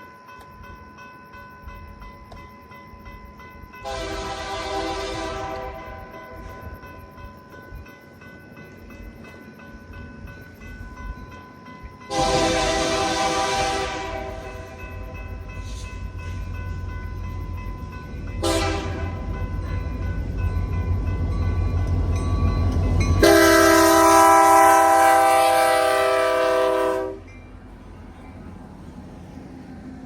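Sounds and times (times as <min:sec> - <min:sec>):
locomotive air horn: 0:03.8 - 0:06.2, 0:12.1 - 0:14.8, 0:18.4 - 0:19.4, 0:23.2 - 0:27.3
locomotive rumble: 0:12.0 - 0:30.0.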